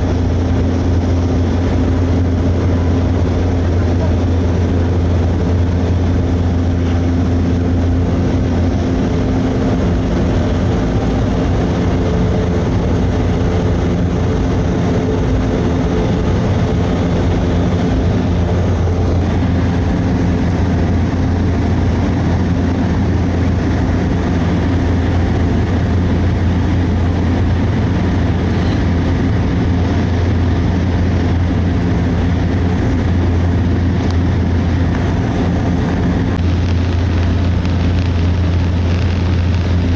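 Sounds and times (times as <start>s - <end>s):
turboprop plane droning in flight: 0.0s - 39.9s.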